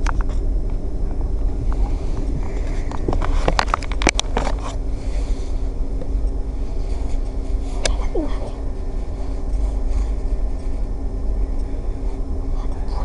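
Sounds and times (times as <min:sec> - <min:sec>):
train humming at station: 0:00.0 - 0:13.0
sharp clicks and knocks: 0:02.9 - 0:04.8.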